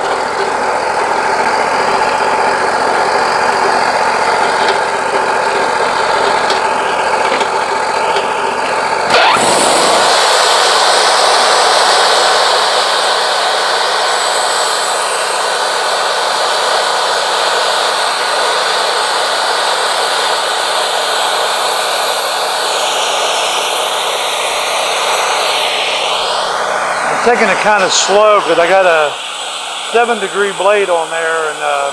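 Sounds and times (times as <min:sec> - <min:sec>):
low engine hum: 0:00.0 - 0:13.8
sawmill blade sawing hiss: 0:00.0 - 0:31.9.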